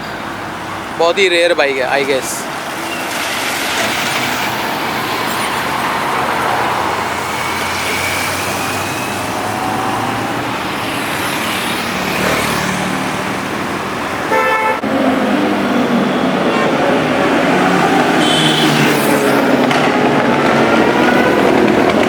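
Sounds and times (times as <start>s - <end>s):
road traffic passing: 0.0s - 22.0s
vehicle horn: 14.3s - 14.9s, 18.0s - 19.2s.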